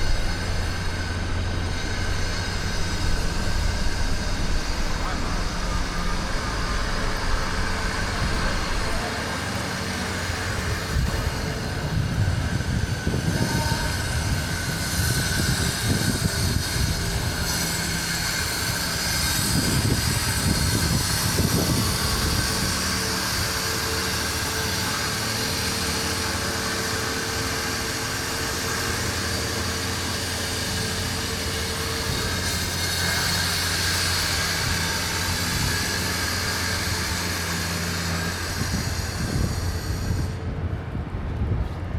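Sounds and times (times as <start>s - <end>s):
vehicles passing with low rumble: 0.0s - 13.3s
low engine drone: 0.0s - 41.9s.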